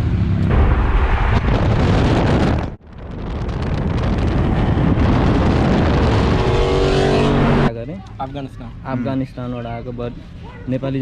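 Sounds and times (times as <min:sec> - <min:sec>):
engine and road rumble: 0:00.0 - 0:11.0
wind buffeting microphone: 0:00.5 - 0:07.6.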